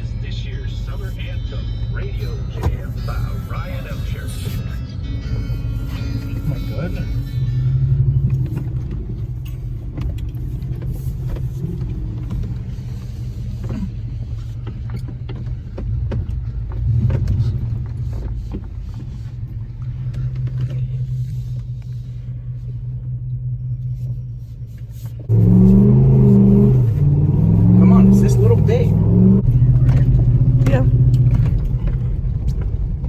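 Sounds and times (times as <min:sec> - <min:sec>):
truck engine running: 0:00.0 - 0:33.0.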